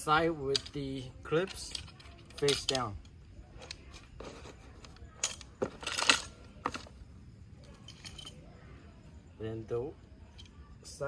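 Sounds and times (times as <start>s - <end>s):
metal rails clinking: 0.0s - 7.0s, 7.6s - 8.5s.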